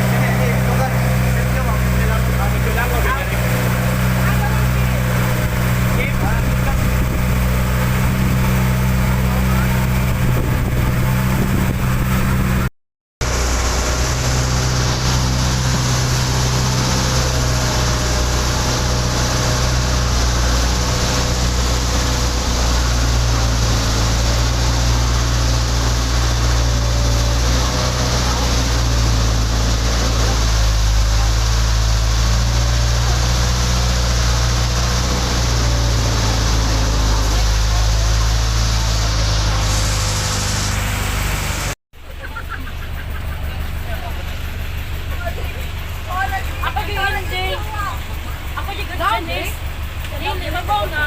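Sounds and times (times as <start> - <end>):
rush of wind and water: 0.0 - 41.8
motorboat engine humming: 0.0 - 51.0.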